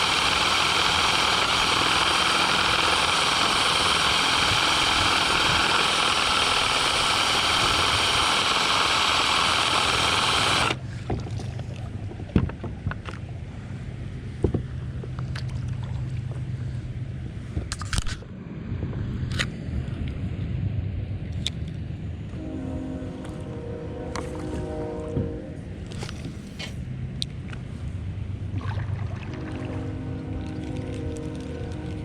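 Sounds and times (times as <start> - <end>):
cordless drill whirring: 0.0 - 10.8
water churning: 0.0 - 16.6, 28.3 - 32.0
low hum: 0.0 - 32.0.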